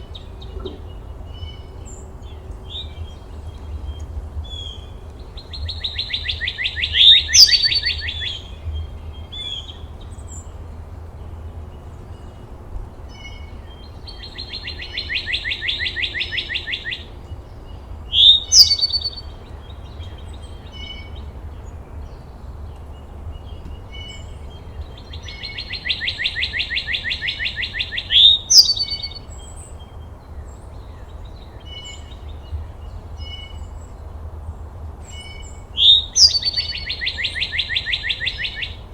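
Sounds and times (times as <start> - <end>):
songbird trilling: 0.0 - 10.5, 13.1 - 17.1, 17.8 - 21.3, 23.4 - 30.1, 35.1 - 38.9.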